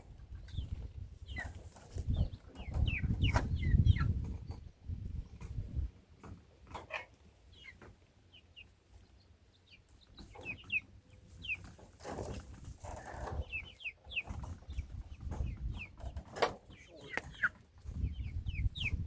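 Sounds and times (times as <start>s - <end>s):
chicks peeping: 0.0s - 19.0s
rustle: 5.5s - 14.5s.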